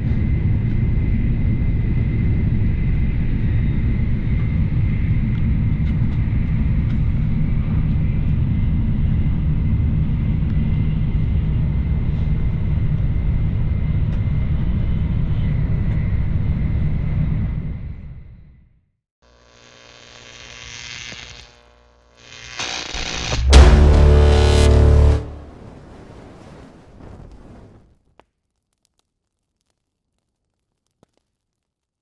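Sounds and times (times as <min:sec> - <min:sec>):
faint high whine: 0:19.2 - 0:26.2.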